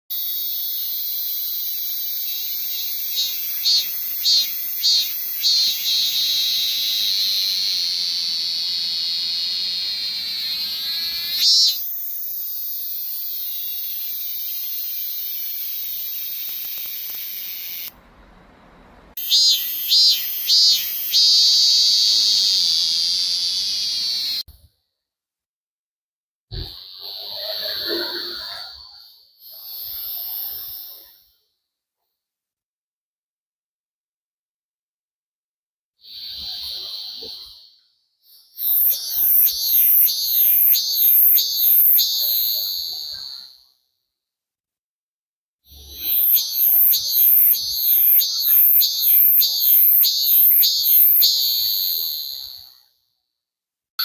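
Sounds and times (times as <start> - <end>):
cicadas buzzing: 0.1 - 17.9, 19.2 - 24.4, 26.8 - 31.0, 36.0 - 37.7, 38.3 - 43.6, 45.8 - 52.8.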